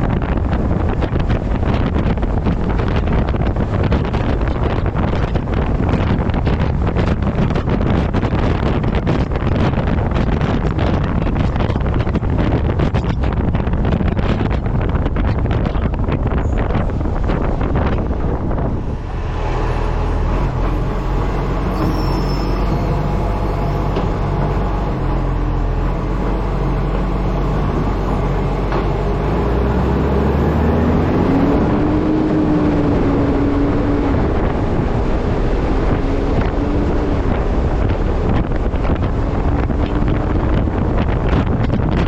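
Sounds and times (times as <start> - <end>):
low wavering hum: 0.0 - 42.0
truck engine and road noise: 0.0 - 42.0
wind rushing over microphone: 0.0 - 42.0.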